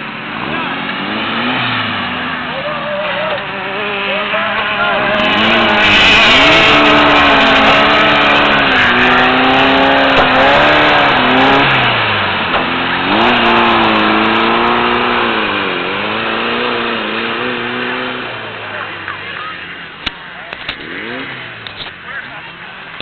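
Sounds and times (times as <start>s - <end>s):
race car engine revving: 0.0s - 23.0s.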